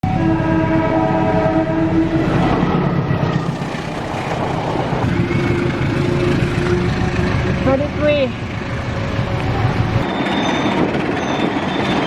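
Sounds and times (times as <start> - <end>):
locomotive horn: 0.1 - 3.0, 4.3 - 10.0
locomotive engine rumble: 2.0 - 10.1.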